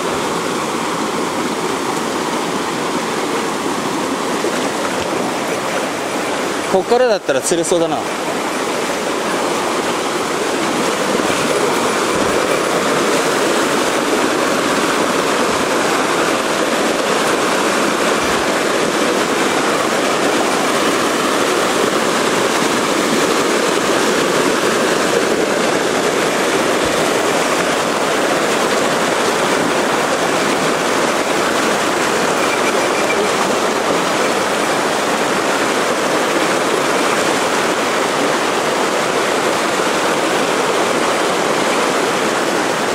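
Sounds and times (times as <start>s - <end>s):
water rushing in a stream: 0.0s - 42.9s.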